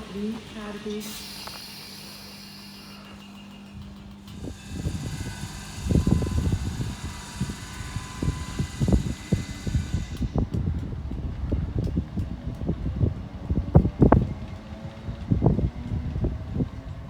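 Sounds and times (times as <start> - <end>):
faint steady tones: 0.0 - 10.9
train rumbling: 0.0 - 17.0.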